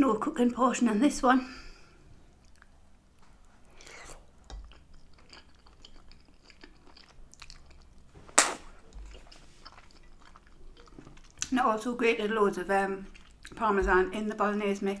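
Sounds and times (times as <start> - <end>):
person chewing food: 2.3 - 11.5, 13.1 - 13.6.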